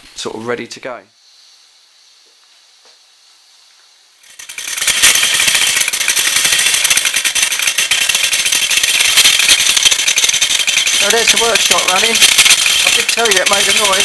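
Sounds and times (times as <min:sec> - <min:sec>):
faint steam hiss: 0:00.0 - 0:04.2
model workshop machines rattling: 0:04.2 - 0:14.0.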